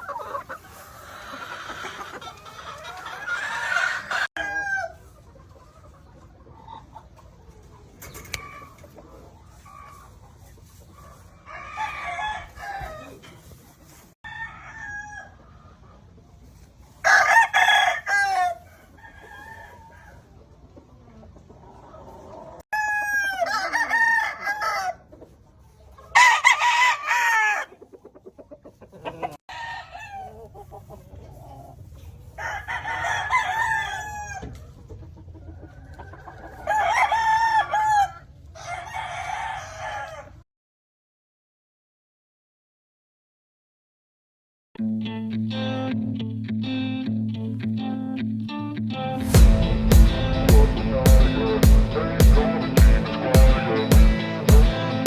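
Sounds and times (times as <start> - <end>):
roosters crowing: 0.0 - 5.1, 11.4 - 13.3, 14.2 - 15.4, 17.0 - 20.3, 22.7 - 25.1, 26.1 - 27.8, 29.2 - 30.4, 32.3 - 34.6, 35.8 - 40.4
chickens clucking: 0.0 - 14.2, 15.2 - 17.5, 18.1 - 26.4, 27.2 - 40.4.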